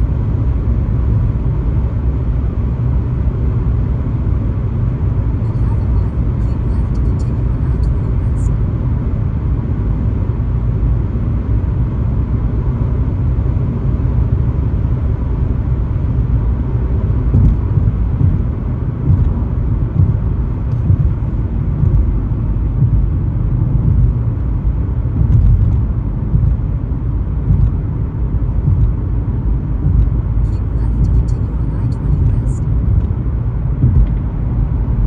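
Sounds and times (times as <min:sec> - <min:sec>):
car road and engine rumble: 0:00.0 - 0:35.0.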